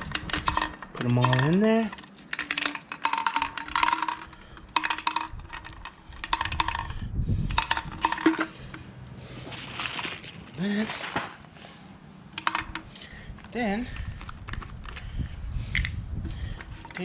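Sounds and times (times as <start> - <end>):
marbles clattering into plastic tank: 0.0 - 8.6, 12.4 - 12.9.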